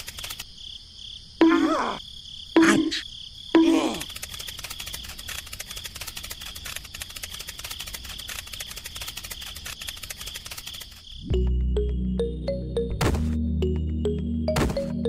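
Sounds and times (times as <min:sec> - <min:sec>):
fast clicking rattle: 0:00.0 - 0:00.4, 0:03.9 - 0:11.0
insects chirring: 0:00.0 - 0:11.6
music: 0:11.3 - 0:15.0.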